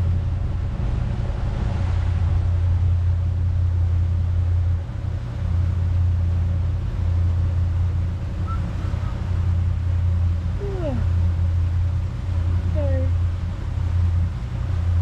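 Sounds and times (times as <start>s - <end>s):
motorboat engine droning: 0.0s - 15.0s.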